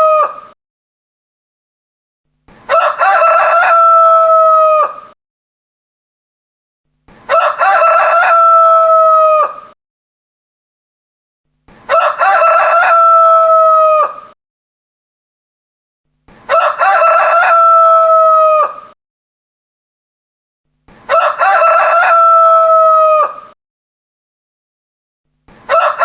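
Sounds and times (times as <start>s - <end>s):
rooster crowing: 0.0s - 0.5s, 2.7s - 5.2s, 7.3s - 9.8s, 11.9s - 14.4s, 16.5s - 19.0s, 21.1s - 23.6s, 25.7s - 26.0s.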